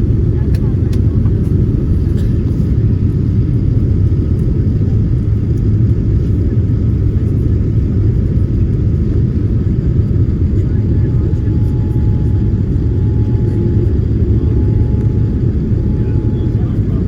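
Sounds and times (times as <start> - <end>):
jet engines rumbling in cabin: 0.0 - 17.0.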